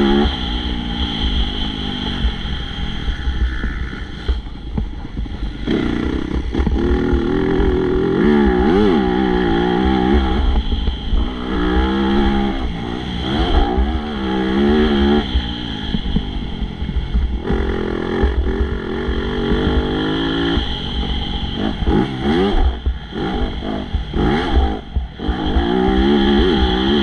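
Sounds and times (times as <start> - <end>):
motocross bike engine revving: 0.0 - 27.0.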